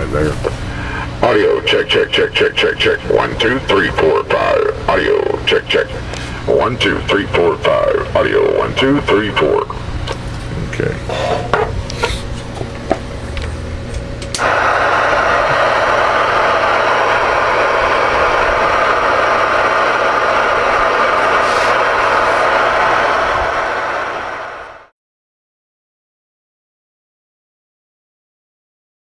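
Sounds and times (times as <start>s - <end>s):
radio static hiss: 0.0s - 9.9s, 14.4s - 24.9s
low hum: 0.0s - 24.9s.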